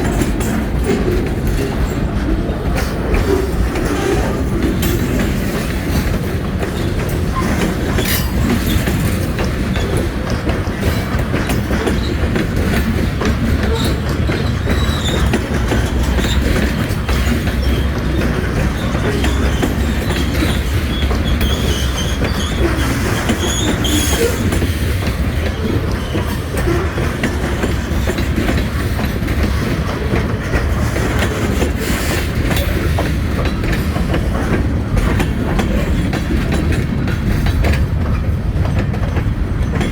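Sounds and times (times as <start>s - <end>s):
freight train rumbling: 0.0s - 39.9s
wheels clicking over rail joints: 0.0s - 39.9s.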